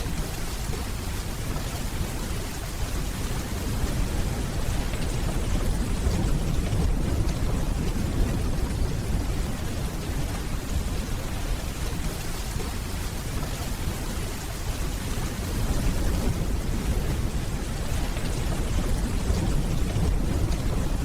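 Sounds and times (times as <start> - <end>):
steady rainfall: 0.0 - 21.0
distant thunder rumbling: 3.3 - 21.0.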